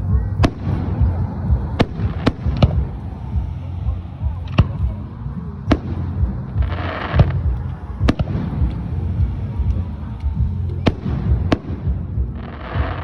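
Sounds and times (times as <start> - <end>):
fireworks bangs: 0.0 - 13.0
steady low rumble: 0.0 - 13.0.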